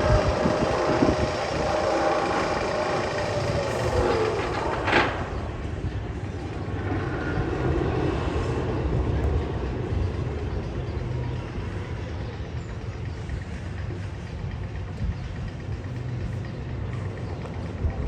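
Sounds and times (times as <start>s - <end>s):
loud burst of noise: 0.0s - 10.1s
roller coaster rumbling on track: 0.0s - 18.0s.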